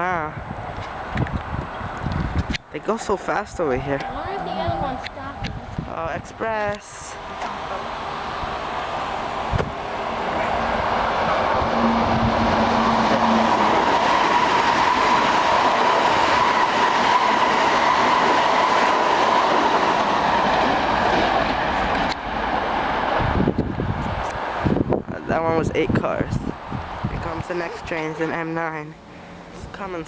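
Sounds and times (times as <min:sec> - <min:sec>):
train wheels rumbling on rail: 0:00.0 - 0:30.0
high ringing tone: 0:03.9 - 0:05.4.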